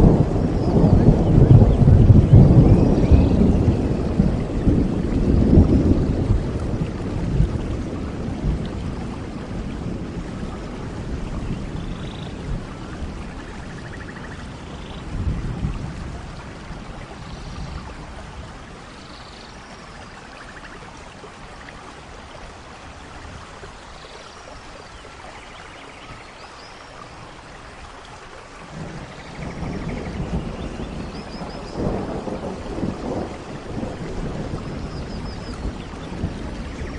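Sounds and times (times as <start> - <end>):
rolling thunder: 0.0 - 18.8, 28.6 - 36.9
rain falling in forest: 0.0 - 36.9.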